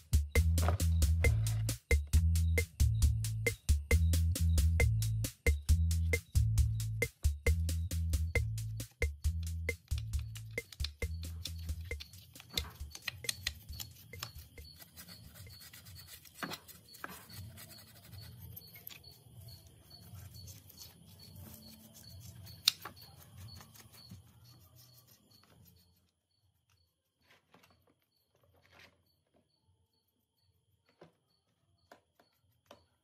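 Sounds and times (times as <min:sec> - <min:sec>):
small metal clicks and knocks: 0:09.7 - 0:14.6, 0:18.6 - 0:19.2
metal parts rubbing and scraping: 0:10.2 - 0:26.0.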